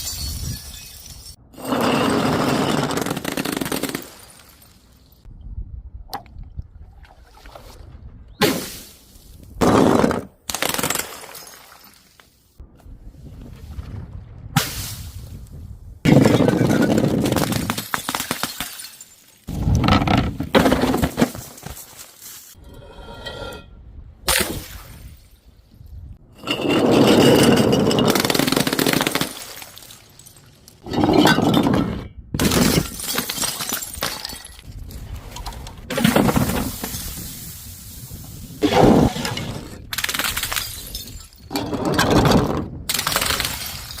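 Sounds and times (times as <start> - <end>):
falling glass shards rattling: 0.0 - 1.4
glass shattering: 0.0 - 1.4, 17.5 - 19.5, 32.4 - 34.7, 40.3 - 41.6.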